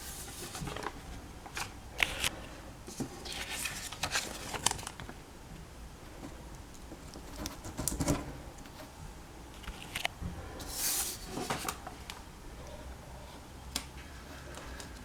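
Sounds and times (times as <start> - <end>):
paper brushing rustle: 0.0 - 1.0, 10.7 - 11.8.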